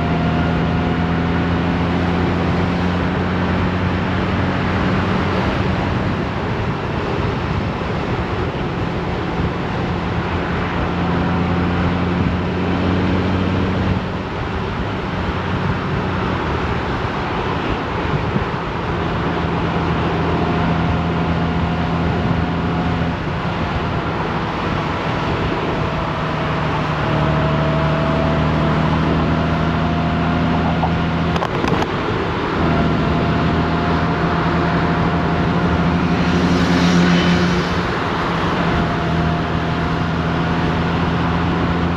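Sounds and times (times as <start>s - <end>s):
wind and road noise: 0.0s - 41.9s
motorcycle engine running: 23.6s - 41.9s.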